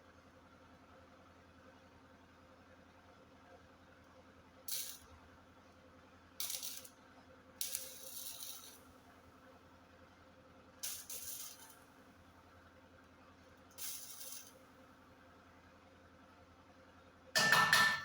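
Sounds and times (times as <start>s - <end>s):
welding arc crackling: 4.7s - 5.0s, 6.4s - 6.9s, 7.6s - 8.8s, 10.8s - 11.8s, 13.8s - 14.5s.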